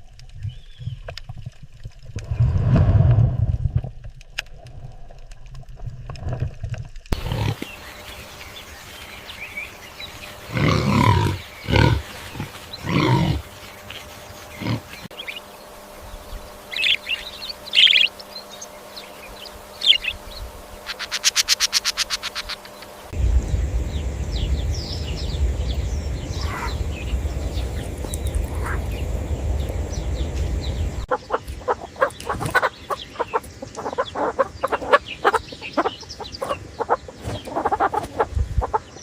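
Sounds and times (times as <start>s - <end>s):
animal calls: 7.2s - 15.8s, 26.2s - 29.2s, 30.8s - 39.0s
rapid pulsing call: 7.2s - 39.0s.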